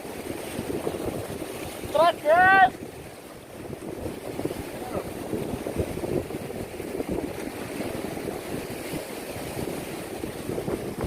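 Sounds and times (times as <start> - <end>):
ocean waves: 0.0 - 11.0
wind buffeting microphone: 0.0 - 11.0.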